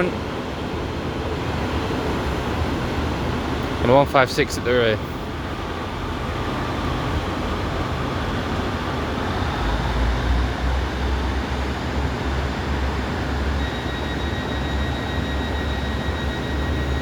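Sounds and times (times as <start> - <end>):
diesel train engines rumbling: 0.0 - 17.0
thin high whine: 1.0 - 17.0.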